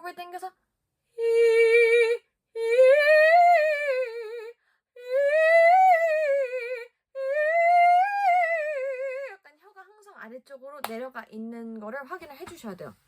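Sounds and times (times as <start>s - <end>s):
woman singing vocal exercises: 0.0s - 9.7s.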